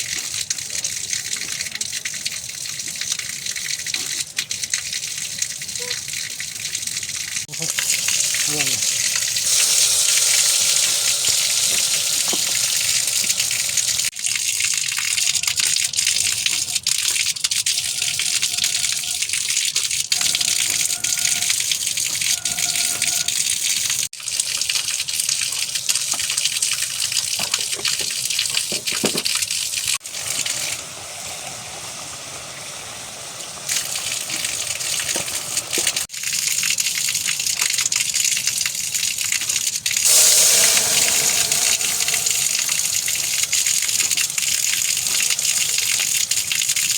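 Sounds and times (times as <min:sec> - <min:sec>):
rushing water: 0:07.4 - 0:14.4, 0:40.0 - 0:46.9.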